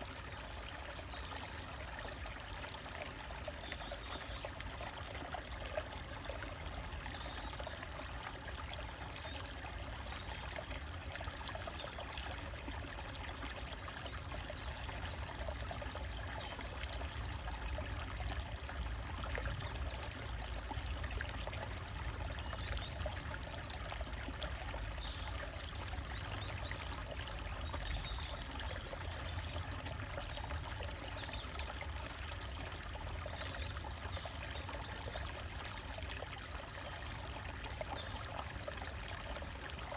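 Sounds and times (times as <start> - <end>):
stream trickling over rocks: 0.0 - 39.9.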